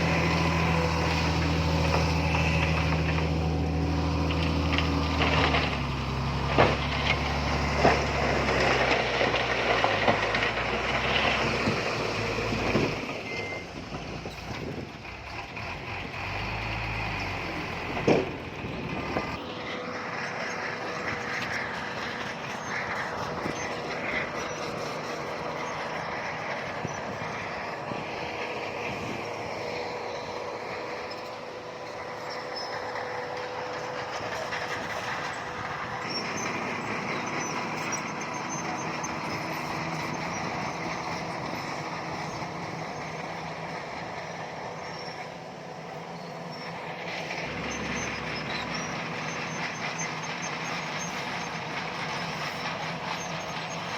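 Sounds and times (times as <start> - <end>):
held whine: 0.0 - 8.8
heavy diesel machinery running: 0.0 - 53.9.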